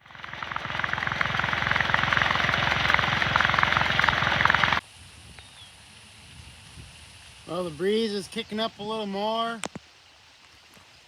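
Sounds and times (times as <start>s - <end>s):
engine chugging: 0.0s - 4.8s.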